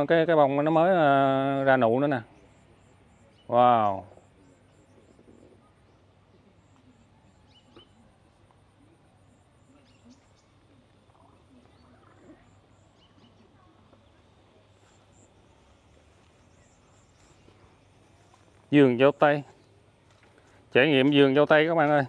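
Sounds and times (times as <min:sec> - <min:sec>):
bird chirps: 0:02.2 - 0:08.1, 0:09.4 - 0:18.6.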